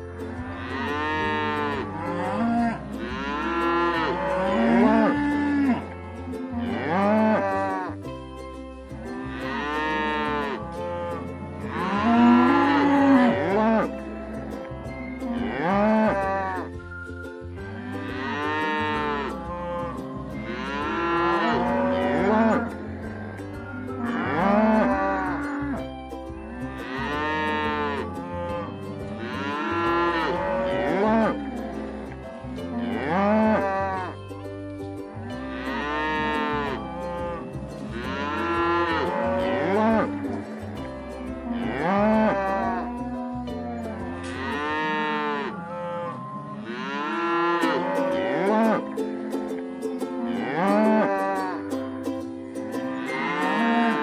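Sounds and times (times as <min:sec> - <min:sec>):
cattle mooing: 0:00.3 - 0:05.9, 0:06.5 - 0:07.9, 0:09.3 - 0:14.0, 0:18.0 - 0:23.4, 0:24.0 - 0:25.5, 0:29.2 - 0:31.9, 0:32.7 - 0:34.1, 0:35.5 - 0:40.6, 0:41.5 - 0:48.9, 0:50.3 - 0:51.6, 0:53.0 - 0:54.0.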